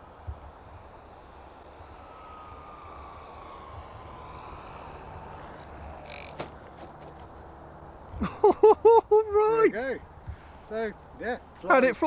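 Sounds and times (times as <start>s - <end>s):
wind on microphone: 0.0s - 8.3s
electric model plane motor whine: 0.0s - 9.6s.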